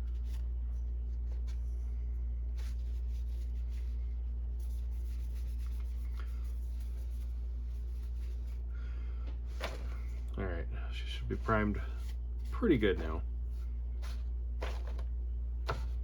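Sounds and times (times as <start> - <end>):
steady low hum: 0.0 - 16.0
rubbing and scratching: 2.5 - 8.6, 11.2 - 15.1.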